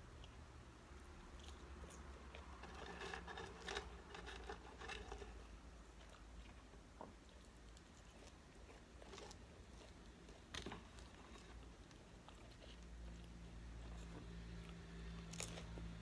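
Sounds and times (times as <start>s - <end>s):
chewing and biting food: 1.1s - 16.0s
small food crunches: 7.3s - 16.0s.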